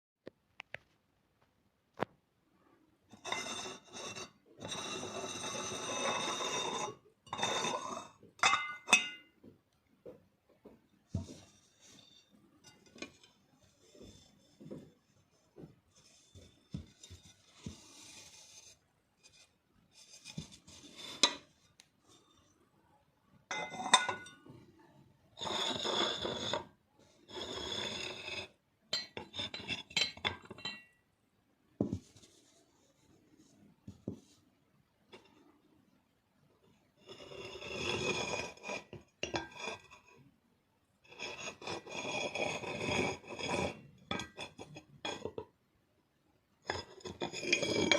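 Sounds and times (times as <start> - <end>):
porcelain scraping: 3.1 - 9.4, 11.1 - 22.7, 23.5 - 31.0, 31.8 - 34.4, 35.1 - 35.6, 36.9 - 40.3, 41.0 - 45.6, 46.6 - 47.9
porcelain clinks: 8.4 - 9.3, 23.5 - 24.4.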